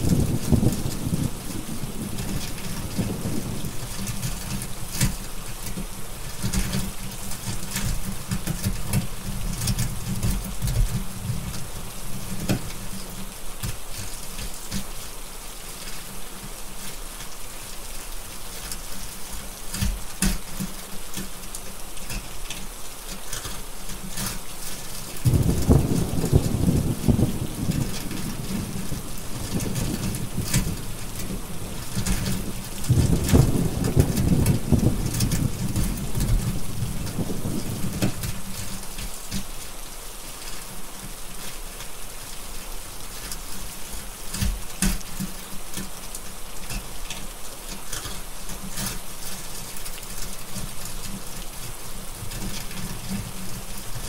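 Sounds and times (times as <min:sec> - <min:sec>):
thunder rumbling: 0:00.0 - 0:03.8, 0:25.2 - 0:38.5
rain hissing: 0:00.0 - 0:54.0.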